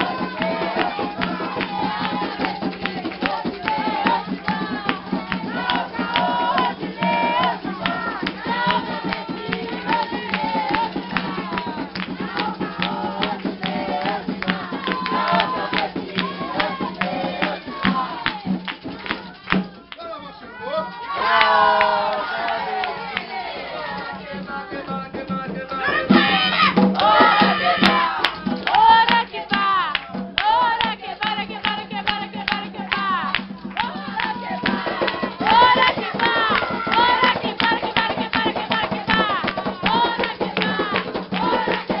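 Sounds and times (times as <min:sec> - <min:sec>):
group of voices chanting: 0:00.0 - 0:19.8, 0:20.4 - 0:42.0
hand-clapping: 0:00.0 - 0:20.0, 0:20.9 - 0:42.0
percussion beat: 0:00.0 - 0:42.0
loud overlapping shouts: 0:03.5 - 0:18.5, 0:20.3 - 0:24.8, 0:25.7 - 0:29.9, 0:34.0 - 0:38.0, 0:38.8 - 0:42.0.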